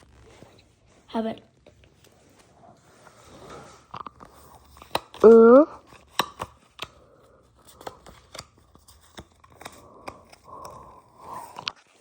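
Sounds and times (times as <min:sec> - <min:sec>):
trading cards clicking and snapping: 0:04.6 - 0:07.0, 0:07.7 - 0:11.8
short voiced hum: 0:05.2 - 0:05.8.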